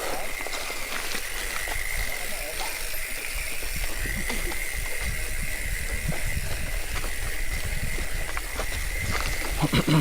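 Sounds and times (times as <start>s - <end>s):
bike tyre and trail noise: 0.0s - 10.0s
wind rumble on microphone: 3.3s - 10.0s.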